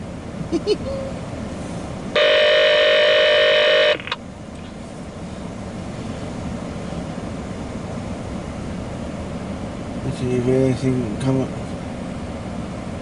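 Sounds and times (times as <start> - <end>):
low background hum: 0.0 - 13.0
electronic tone: 2.2 - 4.2.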